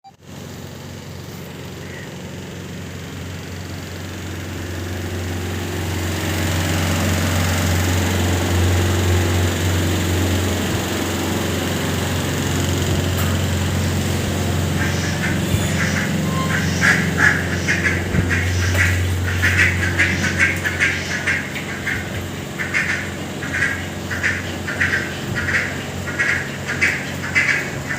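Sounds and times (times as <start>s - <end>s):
low mechanical hum: 0.1s - 27.9s
rapid short animal calls: 1.8s - 2.2s, 14.7s - 27.9s.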